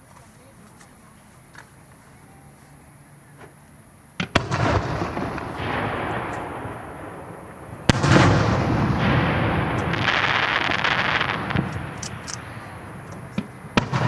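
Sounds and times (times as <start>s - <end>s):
crackling hiss: 0.0s - 14.0s
firework shells bursting: 3.4s - 14.0s.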